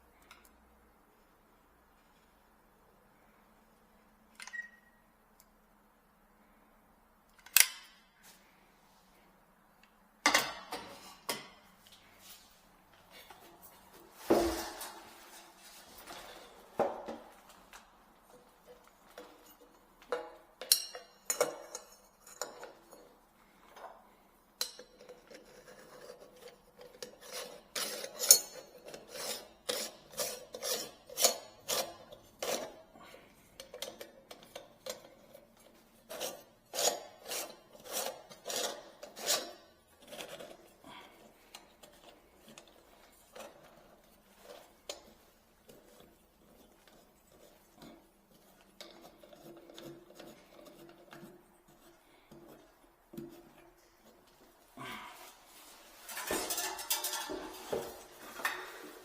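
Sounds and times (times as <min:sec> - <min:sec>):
tools clinking against metal sink: 0:20.1 - 0:23.1, 0:56.1 - 0:58.8.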